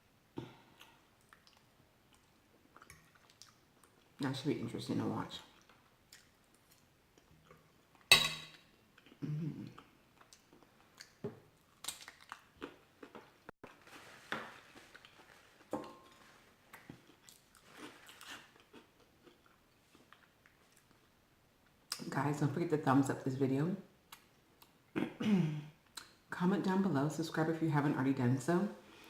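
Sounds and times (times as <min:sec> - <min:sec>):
person chewing: 0:00.6 - 0:04.2, 0:05.5 - 0:08.1, 0:08.9 - 0:13.8, 0:14.7 - 0:21.1.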